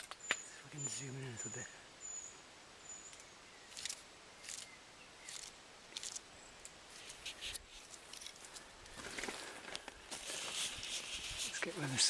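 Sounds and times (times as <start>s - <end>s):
footsteps crunching on forest litter: 6.9s - 12.0s.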